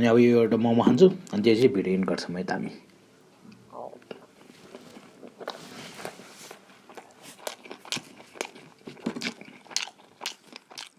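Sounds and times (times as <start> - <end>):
person chewing dumpling: 4.3 - 10.9.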